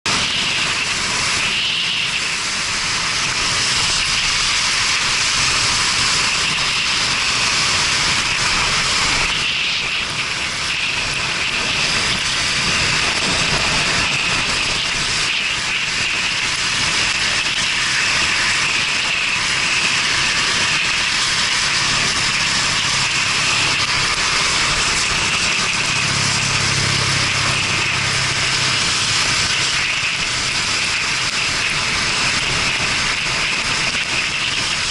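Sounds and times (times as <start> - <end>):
wind rush: 0.0 - 34.9
motorcycle engine hum: 0.1 - 34.9
wet road hiss: 0.1 - 34.9.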